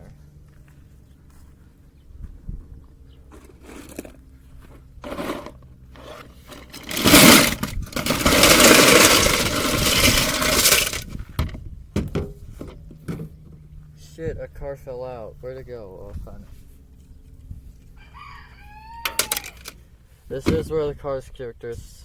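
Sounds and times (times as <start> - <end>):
metal toy cars clattering in tin: 6.0 - 11.1, 19.0 - 19.8.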